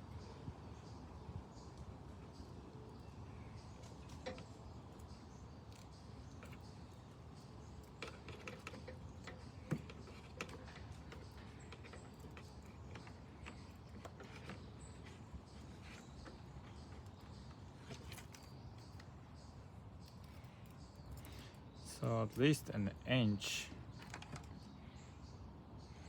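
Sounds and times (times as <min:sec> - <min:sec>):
hand tools clicking and tapping: 0:07.8 - 0:19.1.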